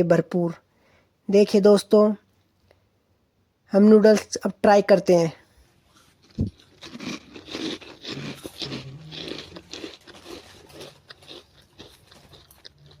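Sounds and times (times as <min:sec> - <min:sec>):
crunchy noodles being chewed: 0:05.9 - 0:13.0.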